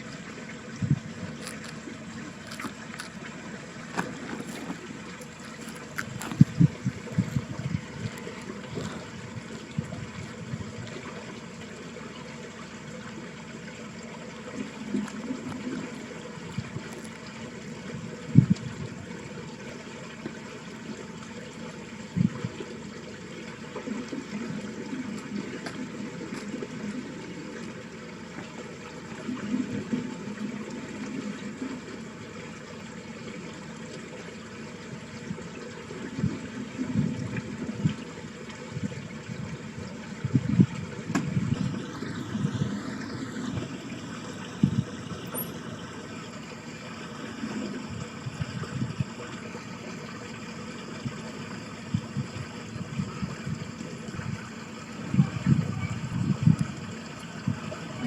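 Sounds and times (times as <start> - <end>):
water running in a ditch: 0.0 - 58.0
wind thumping on microphone: 0.8 - 1.5, 5.6 - 10.9, 18.3 - 19.0, 38.8 - 42.8, 44.6 - 45.0, 51.9 - 57.8.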